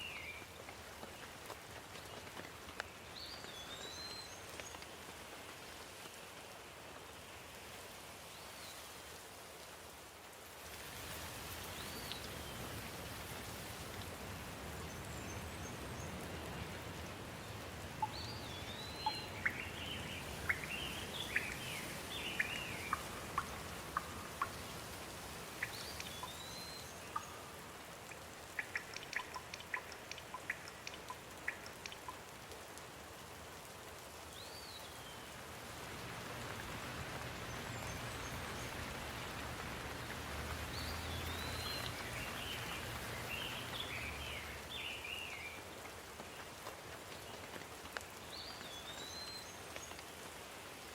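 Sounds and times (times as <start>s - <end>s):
rain hiss: 0.0s - 50.9s
birds chirping: 18.0s - 24.8s, 25.5s - 27.8s, 28.4s - 32.2s, 36.5s - 45.4s
sharp ticks: 28.5s - 32.2s.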